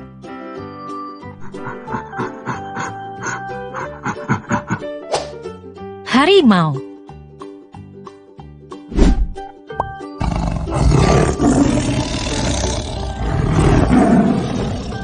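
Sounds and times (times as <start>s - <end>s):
light children's background music: 0.0s - 15.0s
tiger roaring: 10.2s - 15.0s.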